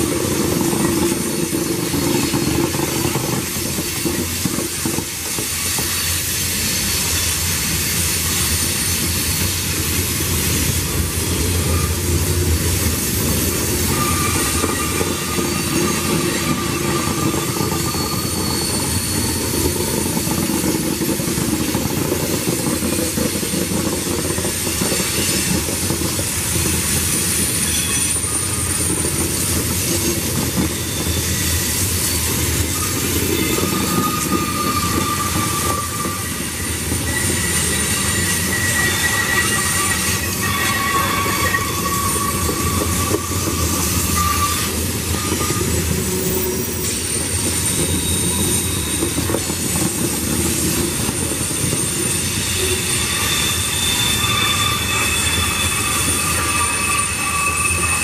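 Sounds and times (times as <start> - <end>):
train wheels rumbling on track: 0.0 - 58.0
thin wheel squeals: 11.6 - 21.9, 24.3 - 58.0.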